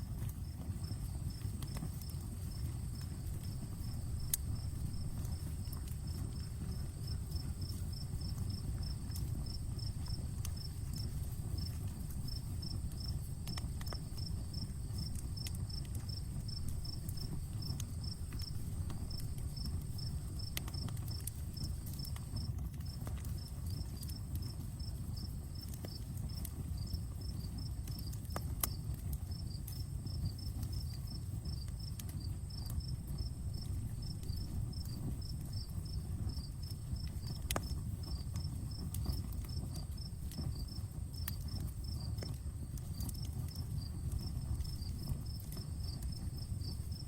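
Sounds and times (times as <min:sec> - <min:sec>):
campfire crackling: 0:00.0 - 0:47.0
cricket chirping: 0:00.5 - 0:47.0.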